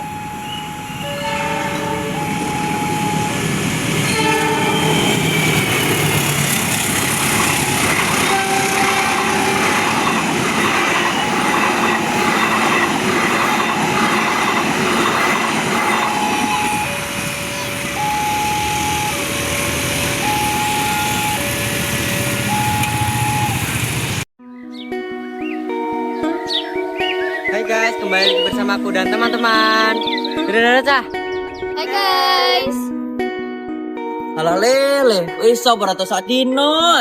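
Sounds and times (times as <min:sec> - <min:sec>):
two-tone level crossing alarm: 0:00.0 - 0:24.0
rhythmic train wheel noise: 0:00.0 - 0:24.2
train rumbling past: 0:00.0 - 0:24.3
train horn: 0:00.8 - 0:03.0, 0:04.0 - 0:06.4, 0:07.0 - 0:18.6.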